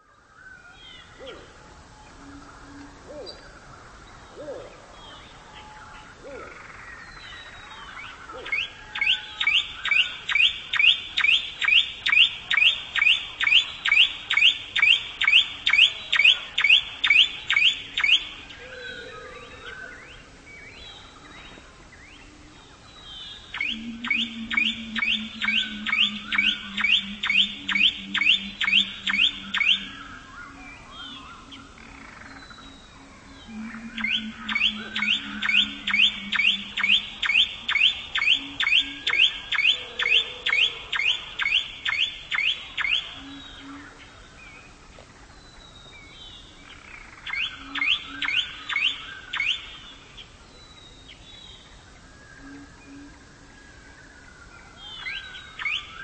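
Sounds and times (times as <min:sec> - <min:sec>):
low steady drone: 0:21.6 - 0:41.4
bird rising chirps: 0:23.3 - 0:43.8.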